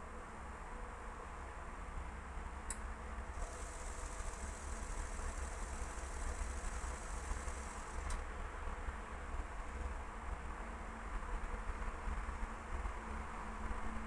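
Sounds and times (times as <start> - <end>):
washing machine spin rumble: 3.3 - 8.4
high steady whine: 3.4 - 8.2.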